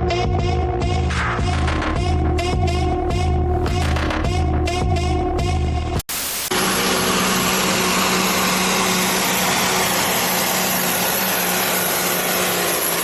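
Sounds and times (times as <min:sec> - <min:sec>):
mechanical engine noise: 0:06.3 - 0:13.0.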